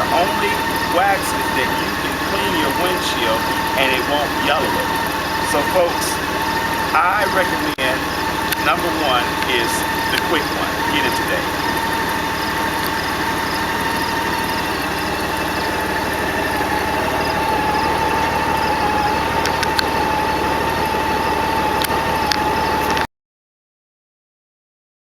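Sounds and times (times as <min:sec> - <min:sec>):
high whine: 0:00.0 - 0:23.1
vehicle engine idling: 0:00.0 - 0:23.1.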